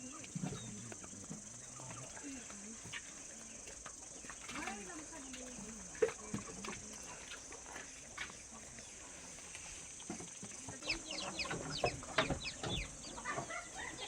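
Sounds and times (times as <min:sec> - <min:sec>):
chickens clucking: 0:08.2 - 0:14.0.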